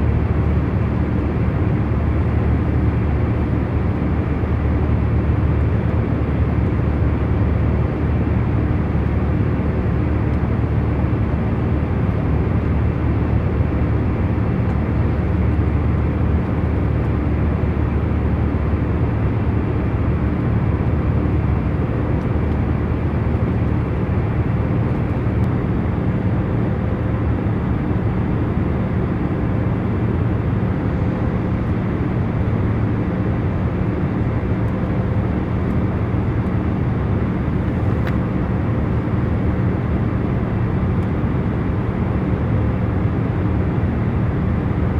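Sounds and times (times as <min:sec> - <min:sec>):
airliner cabin hum: 0:19.0 - 0:42.4.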